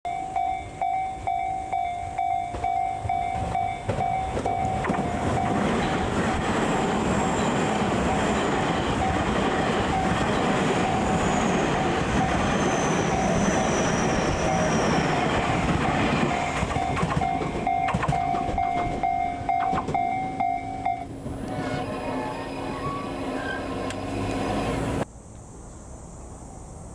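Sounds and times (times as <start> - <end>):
level crossing warning bell: 0.1 - 6.4, 7.3 - 21.1
train passing over rails: 0.1 - 25.1
high wheel squeals: 0.8 - 25.0.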